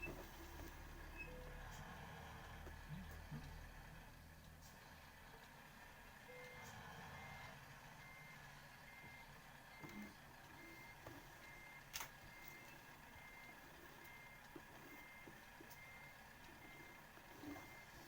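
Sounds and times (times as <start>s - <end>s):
reversing warning beeper: 6.3s - 18.0s.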